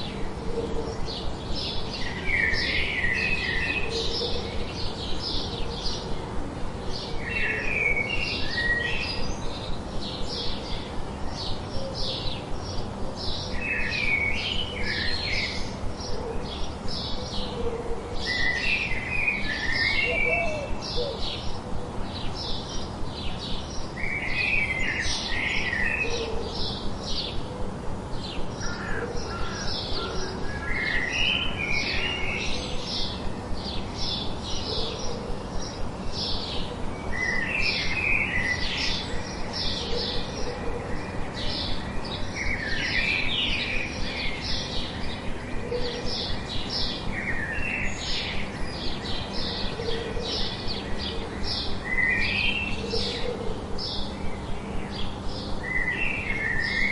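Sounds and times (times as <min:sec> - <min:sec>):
birds chirping: 0:00.0 - 0:56.9
lower bird warbling: 0:17.1 - 0:21.5.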